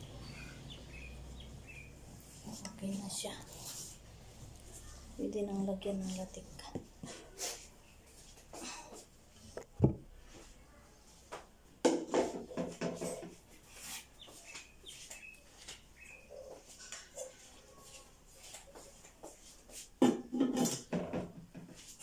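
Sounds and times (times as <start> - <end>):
thump: 9.8 - 10.0.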